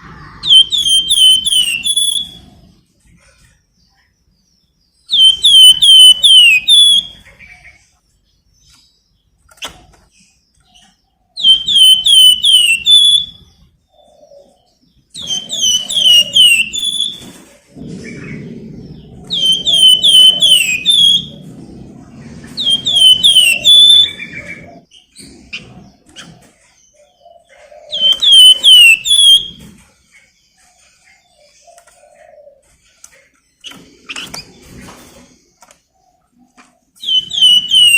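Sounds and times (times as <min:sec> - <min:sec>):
songbird whistling: 0:00.0 - 0:02.6, 0:05.1 - 0:07.3, 0:11.4 - 0:13.6, 0:15.2 - 0:17.3, 0:18.9 - 0:21.5, 0:22.5 - 0:24.9, 0:27.9 - 0:29.6, 0:37.0 - 0:37.9.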